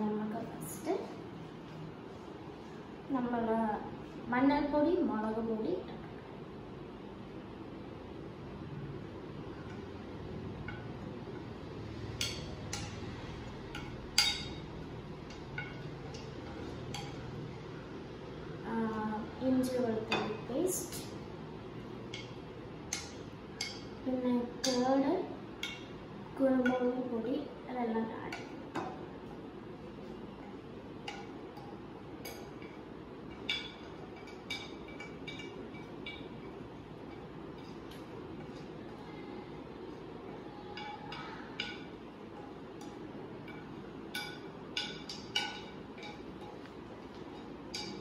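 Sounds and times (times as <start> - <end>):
spoon clinking against a bowl: 13.7 - 17.3, 31.0 - 38.6, 42.7 - 46.7, 47.3 - 48.0.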